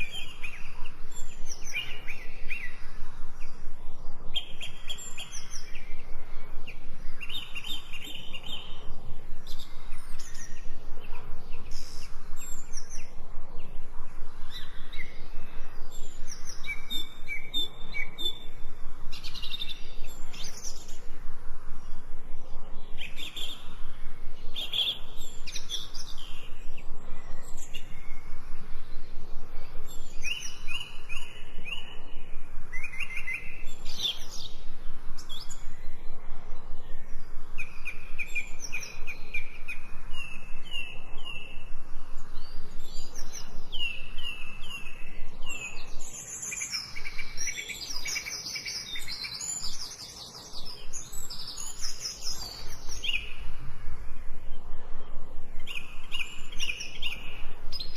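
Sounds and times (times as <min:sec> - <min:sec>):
songbirds chirping and singing: 0:00.0 - 0:21.2, 0:21.8 - 0:57.9.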